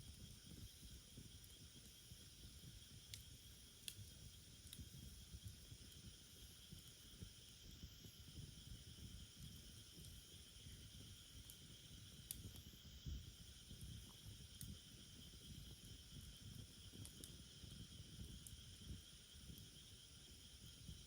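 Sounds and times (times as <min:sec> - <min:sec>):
wood fire burning: 0:00.0 - 0:21.0
insects chirring: 0:05.1 - 0:21.0.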